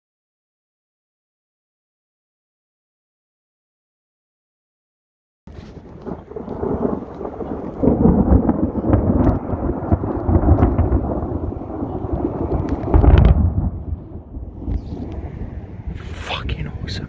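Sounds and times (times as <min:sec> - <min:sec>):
thunder rumbling and crackling: 0:05.5 - 0:17.0.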